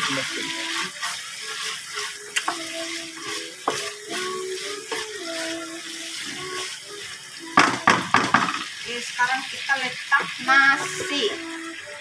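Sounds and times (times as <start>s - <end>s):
chicken sizzling in oil: 0.0s - 12.0s
spatula knocking against pan: 7.6s - 8.6s.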